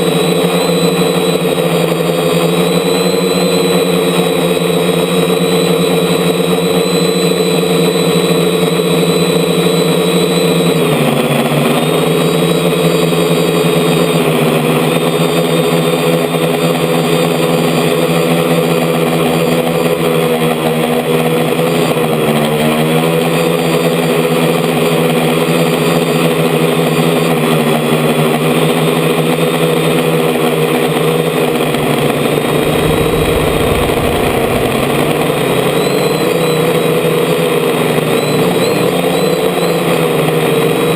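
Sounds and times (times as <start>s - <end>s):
drone motors and propellers buzzing: 29.2s - 40.0s
low rumble: 31.2s - 37.4s.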